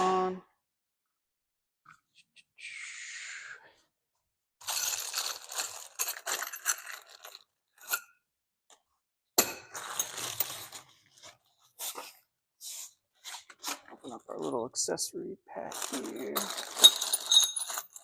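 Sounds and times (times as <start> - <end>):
packaging crinkling: 4.8 - 7.4, 15.7 - 17.2
parts clinking: 15.8 - 18.0.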